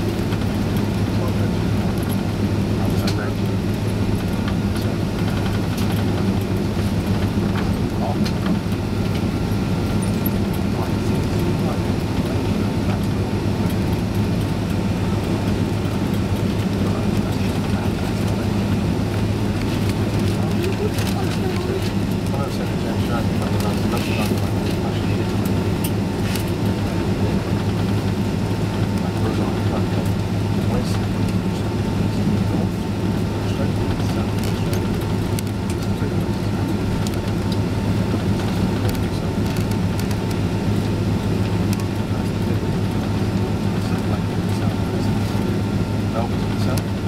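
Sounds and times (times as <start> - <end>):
airliner engines and cabin air hum: 0.0 - 47.0.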